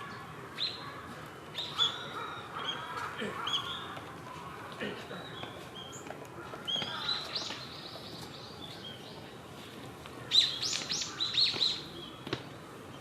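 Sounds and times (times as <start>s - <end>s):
tits calling: 10.2s - 12.2s.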